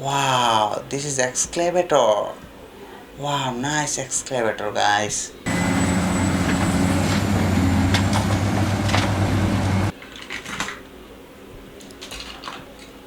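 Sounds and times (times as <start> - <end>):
toy excavator humming: 5.5 - 9.9.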